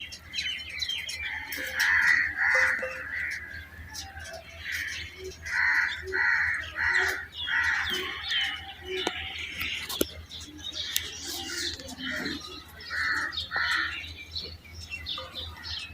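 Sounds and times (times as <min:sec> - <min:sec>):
bird harsh calls: 0:00.0 - 0:15.9.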